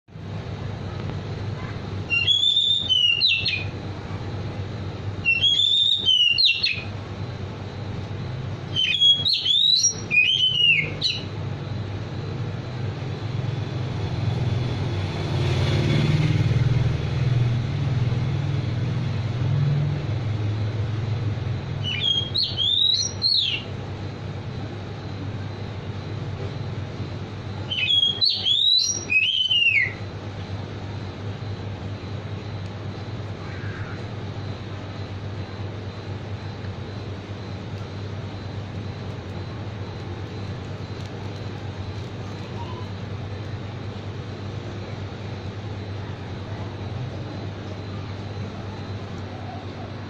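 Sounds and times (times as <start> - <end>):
songbird whistling phrases: 2.1 - 3.8, 5.2 - 6.9, 8.7 - 11.3, 21.8 - 23.7, 27.6 - 30.0, 42.4 - 43.0.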